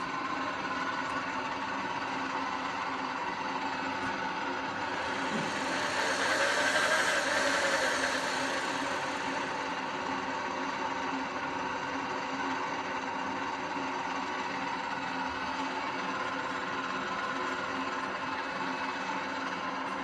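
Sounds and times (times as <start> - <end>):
milling machine humming: 0.0 - 12.5
hiss: 4.8 - 10.3.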